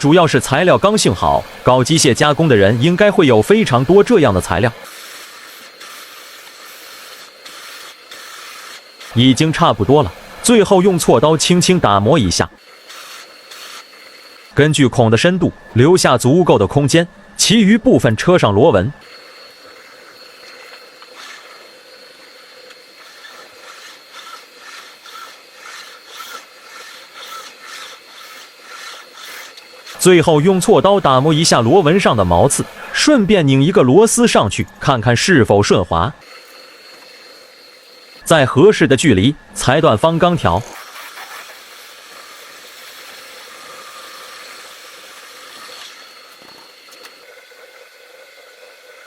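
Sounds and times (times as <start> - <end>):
lathe humming: 0.0 - 49.0
metal scraping strokes: 18.9 - 33.2.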